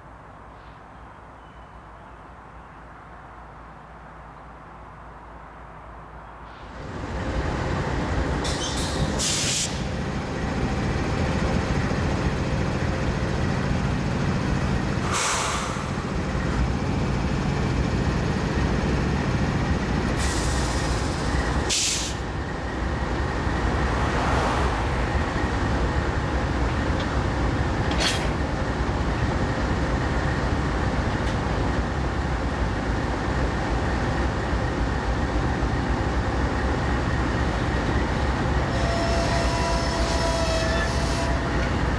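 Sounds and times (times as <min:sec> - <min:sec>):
train wheels rumbling: 0:06.6 - 0:41.9
high-pitched hisses and squeals: 0:08.4 - 0:09.9, 0:20.2 - 0:22.2.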